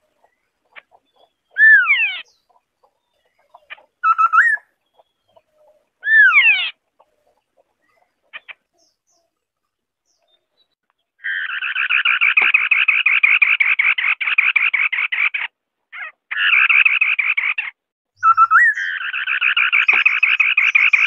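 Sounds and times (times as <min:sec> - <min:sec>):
bird whistling song phrases: 0:04.0 - 0:04.7, 0:18.2 - 0:21.0.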